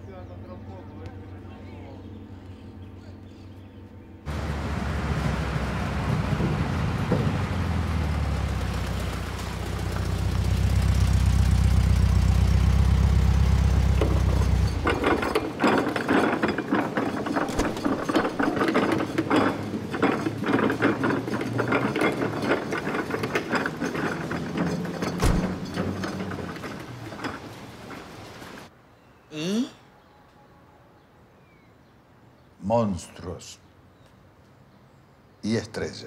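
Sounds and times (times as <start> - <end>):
car engine running low: 4.3 - 28.7.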